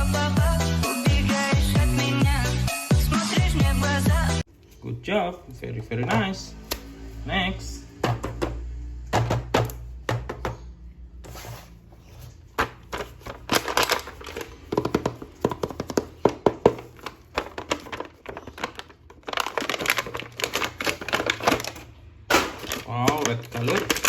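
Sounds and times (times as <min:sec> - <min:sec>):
plastic toy packaging crinkling: 0:12.8 - 0:24.0.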